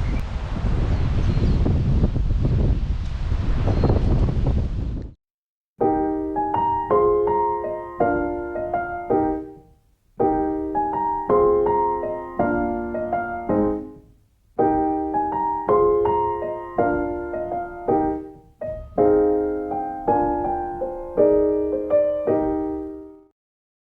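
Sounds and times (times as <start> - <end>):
slow piano music: 5.8 - 23.3.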